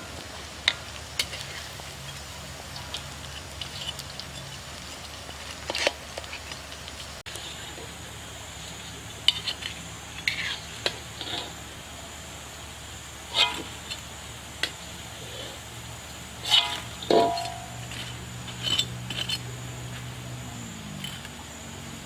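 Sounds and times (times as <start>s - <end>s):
low background hum: 0.0s - 22.0s
utensil clinking against pan: 16.5s - 17.8s.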